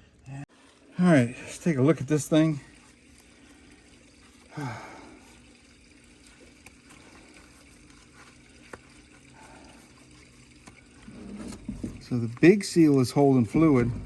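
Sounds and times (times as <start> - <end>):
low steady hum: 0.0 - 14.0
man sighing: 4.5 - 5.2.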